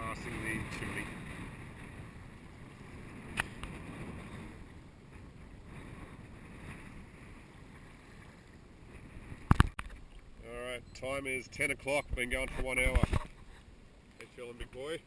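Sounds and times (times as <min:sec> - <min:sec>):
sea around a boat: 0:00.0 - 0:15.0
wind: 0:00.0 - 0:15.0
sharp click: 0:03.3 - 0:03.7.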